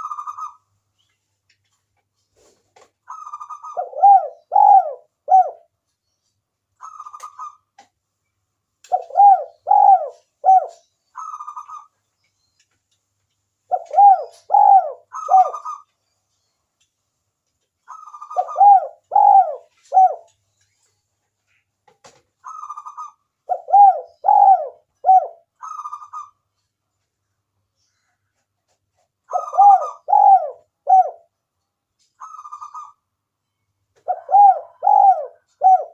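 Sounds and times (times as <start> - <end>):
dove cooing: 3.1 - 5.7, 8.9 - 11.9, 13.7 - 15.9, 17.9 - 20.3, 22.4 - 26.4, 29.3 - 31.3, 34.0 - 35.9.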